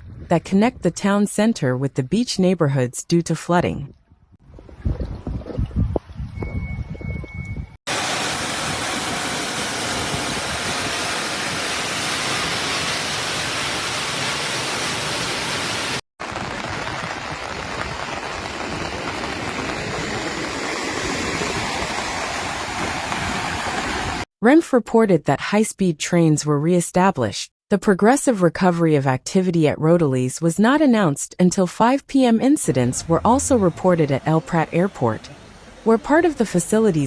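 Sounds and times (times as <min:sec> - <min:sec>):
rushing water: 0:07.9 - 0:24.3.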